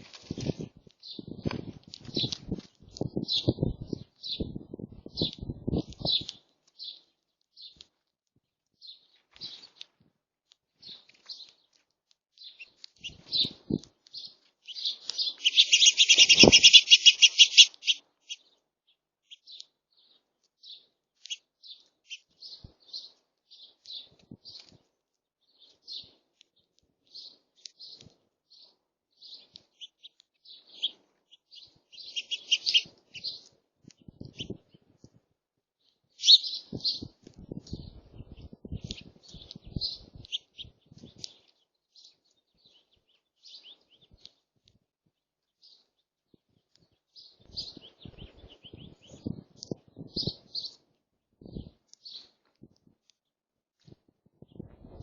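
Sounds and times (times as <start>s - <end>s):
small birds chirping: 0.0s - 55.0s
rapid chattering bird trill: 14.7s - 18.0s, 31.9s - 33.4s.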